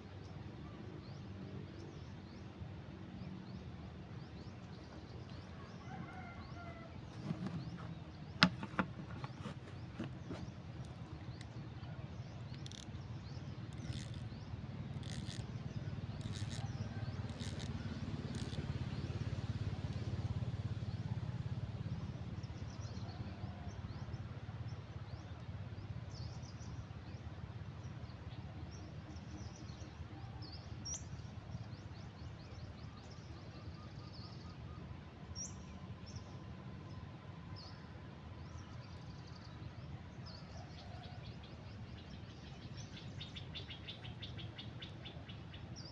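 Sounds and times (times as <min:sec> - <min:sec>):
small birds chirping: 0:07.1 - 0:20.1.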